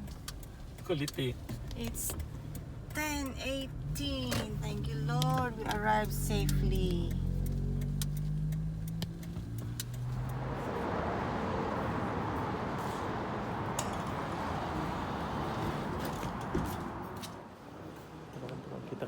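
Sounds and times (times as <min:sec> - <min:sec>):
car engine idling: 0:00.0 - 0:17.2
clicks: 0:04.2 - 0:10.4.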